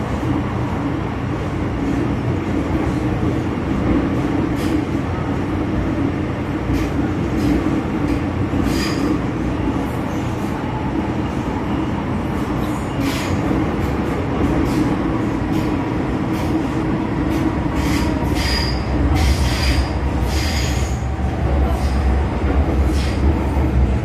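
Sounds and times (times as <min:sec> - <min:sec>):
train rumbling on track: 0:00.0 - 0:24.0
wheel and rail hissing: 0:08.6 - 0:09.2, 0:17.4 - 0:22.2, 0:22.8 - 0:23.4.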